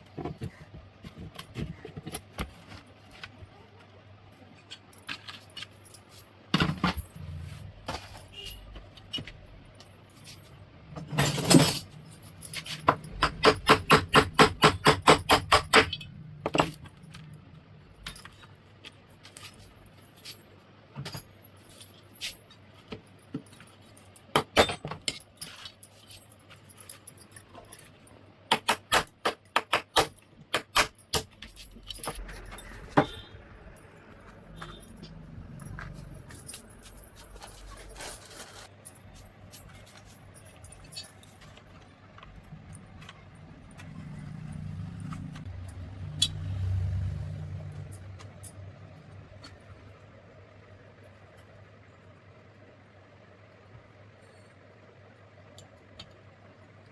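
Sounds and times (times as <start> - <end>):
metal tools clinking and knocking: 4.6 - 28.7, 29.3 - 46.3.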